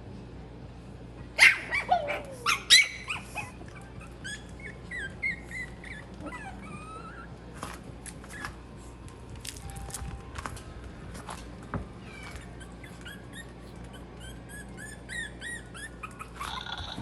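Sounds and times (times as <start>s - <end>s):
puppies yelping and whining: 1.4s - 8.8s, 12.0s - 17.0s.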